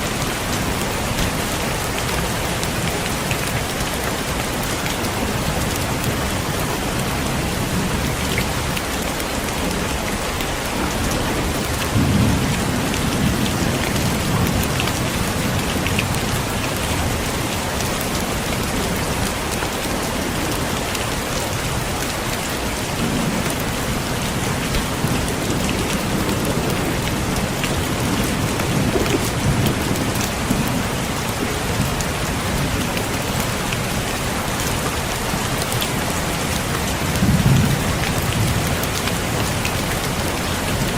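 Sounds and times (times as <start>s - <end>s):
heavy rain falling: 0.0s - 40.9s
thunder rumbling: 9.6s - 19.1s, 22.8s - 34.4s.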